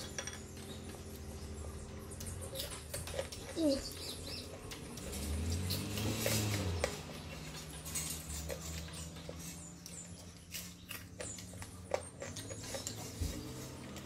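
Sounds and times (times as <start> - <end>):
person chewing rice: 4.5 - 14.0.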